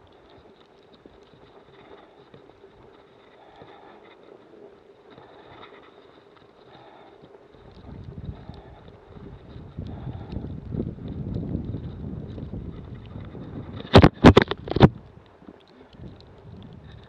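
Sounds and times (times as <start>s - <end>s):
wind buffeting microphone: 7.7s - 15.2s, 15.9s - 17.0s.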